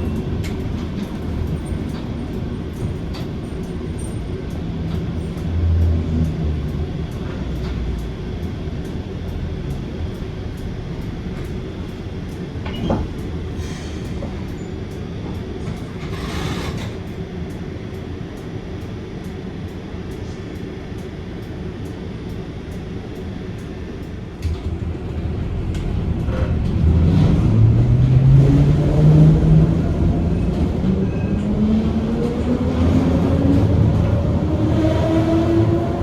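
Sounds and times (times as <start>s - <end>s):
tram squeal: 0.0s - 5.5s, 12.6s - 17.0s, 30.2s - 31.9s
tram rumbling on track: 0.0s - 36.0s.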